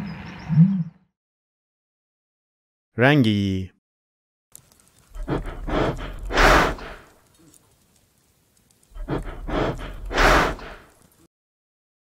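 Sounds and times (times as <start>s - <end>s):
reindeer breathing out hard: 4.9s - 7.2s, 8.8s - 11.2s.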